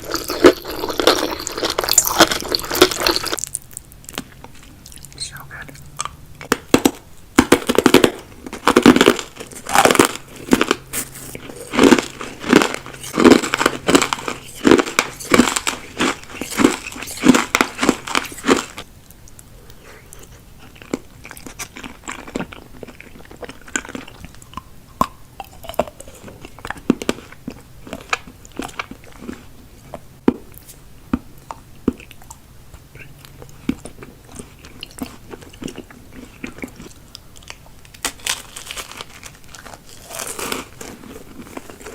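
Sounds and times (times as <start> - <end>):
crisp crunching and chewing: 0.0 - 41.9
wet mouth clicks: 16.1 - 20.3.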